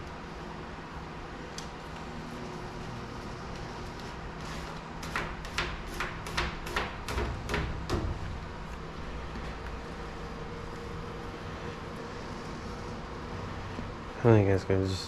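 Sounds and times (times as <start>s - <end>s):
steady low hum: 0.0s - 15.0s
vinyl wrap rubbing strokes: 2.0s - 4.9s.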